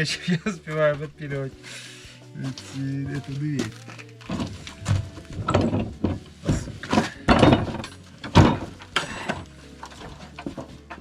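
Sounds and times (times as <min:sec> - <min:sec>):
wooden scraping and knocking: 0:02.4 - 0:11.0.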